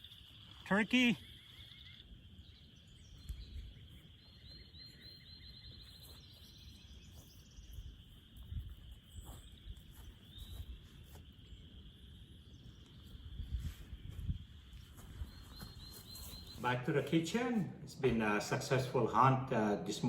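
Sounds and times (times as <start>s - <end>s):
high-pitched chorus of animals: 0.0s - 3.0s.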